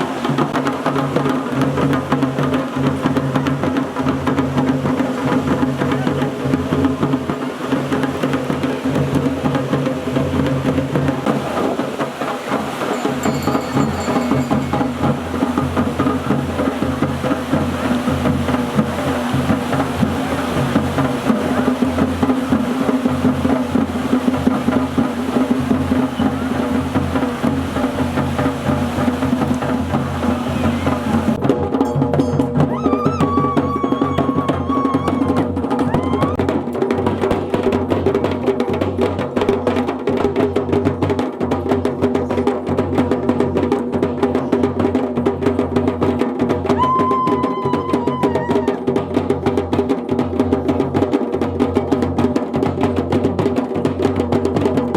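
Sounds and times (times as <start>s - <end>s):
drums playing fast rhythm: 0.0s - 54.9s
held tone: 12.9s - 15.2s, 31.7s - 35.0s.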